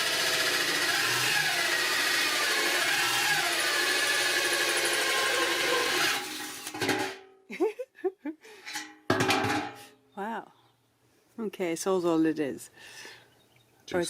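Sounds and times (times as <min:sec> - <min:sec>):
hole cutter grinding into steel: 0:00.0 - 0:07.2.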